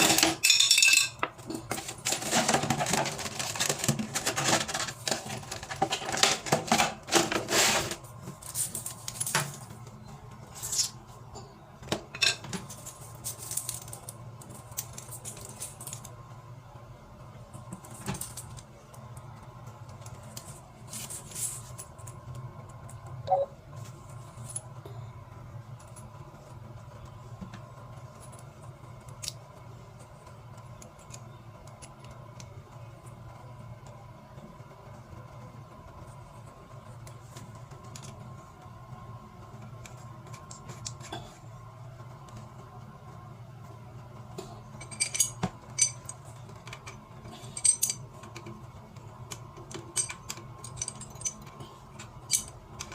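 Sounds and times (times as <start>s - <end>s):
metal parts clinking: 0.0s - 1.2s, 44.8s - 48.1s, 49.8s - 52.6s.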